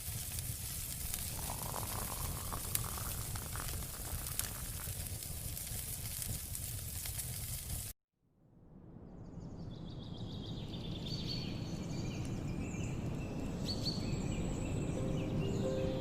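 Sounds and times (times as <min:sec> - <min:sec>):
small birds chirping: 0:09.7 - 0:16.0
steady low rush: 0:14.2 - 0:16.0.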